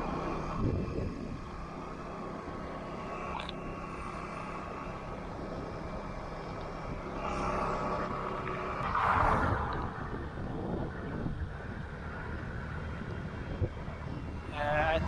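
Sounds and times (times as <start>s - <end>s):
road and wind noise: 0.0s - 15.0s
vehicle engine hum: 0.0s - 15.0s
rush of noise: 7.0s - 12.8s.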